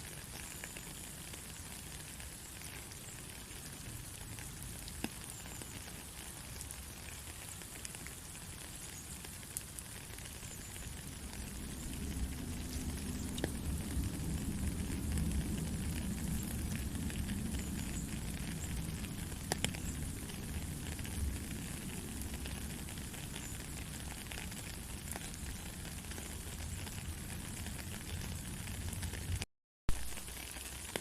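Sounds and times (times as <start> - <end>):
steady rain: 0.0 - 31.0
low rumble: 11.0 - 22.8.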